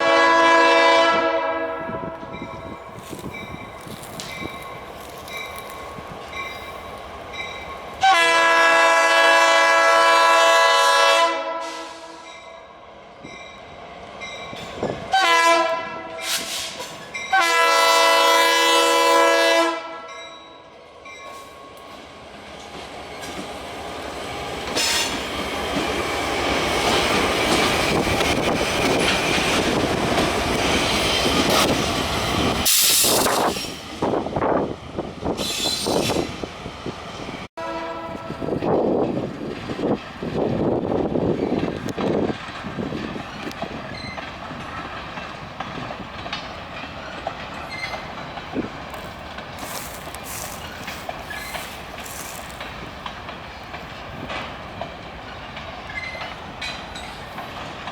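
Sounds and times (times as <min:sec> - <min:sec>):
locomotive air horn blasts: 0:00.0 - 0:02.3, 0:08.0 - 0:12.3, 0:15.1 - 0:20.2, 0:37.6 - 0:38.6
freight train rumbling past: 0:00.0 - 0:57.9
train wheels squealing: 0:16.2 - 0:17.3, 0:24.7 - 0:29.8, 0:35.3 - 0:36.4, 0:43.2 - 0:45.0, 0:47.0 - 0:48.6, 0:49.6 - 0:52.6, 0:55.3 - 0:57.9.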